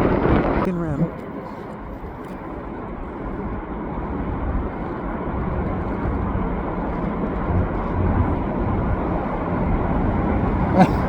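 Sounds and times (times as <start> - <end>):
low vehicle rumble: 0.0 - 11.0.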